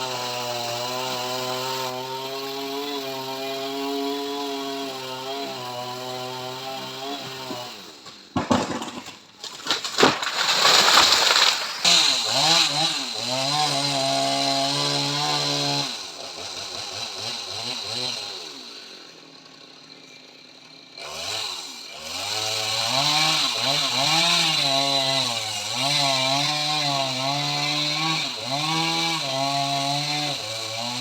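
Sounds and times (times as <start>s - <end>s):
chainsaw engine revving: 0.0s - 8.0s, 9.6s - 19.9s, 20.8s - 31.0s
crackling: 9.4s - 12.1s.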